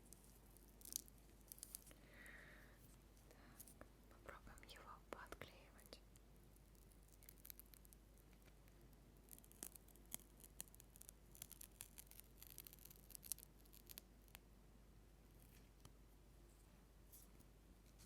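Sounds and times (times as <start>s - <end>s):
soft clicks and crackles: 0.0s - 2.0s, 2.9s - 14.5s.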